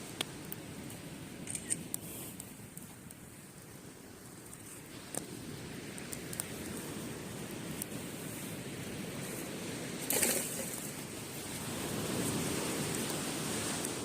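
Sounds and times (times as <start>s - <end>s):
campfire crackling: 0.0s - 14.0s
surf washing on beach: 0.0s - 14.0s.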